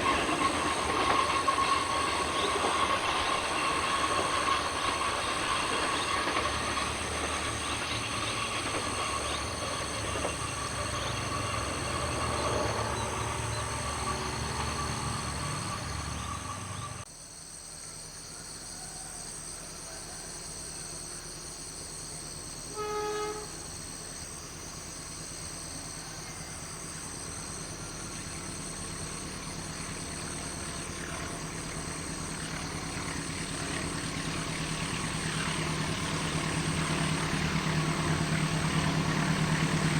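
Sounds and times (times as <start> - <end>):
locomotive engine and wheel noise: 0.0 - 17.1, 18.8 - 39.9
steady engine hum: 0.0 - 17.1, 23.3 - 39.9
short horn blast: 22.7 - 23.7.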